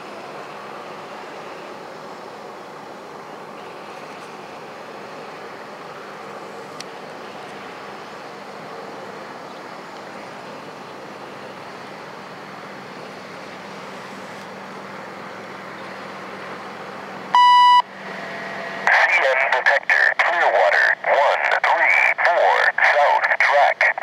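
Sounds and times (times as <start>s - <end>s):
loud electronic beep: 17.4s - 17.9s.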